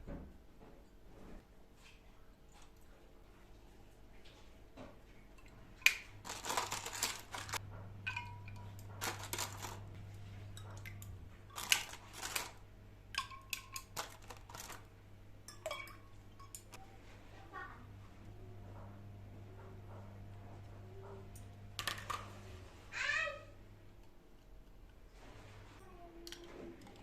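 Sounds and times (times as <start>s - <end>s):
low steady hum: 2.2s - 27.0s
dishes clinking: 7.4s - 9.8s, 15.4s - 16.8s.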